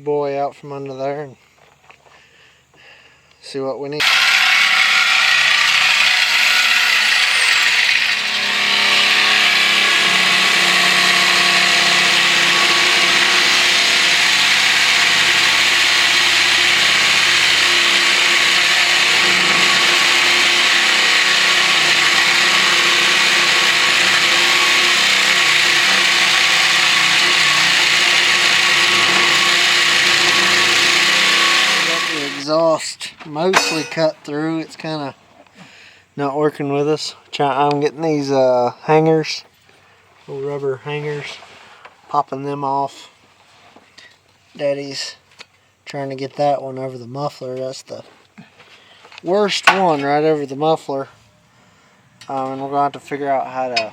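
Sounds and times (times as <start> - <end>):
reciprocating saw cutting metal pipe: 4.0 - 32.6, 33.4 - 34.2.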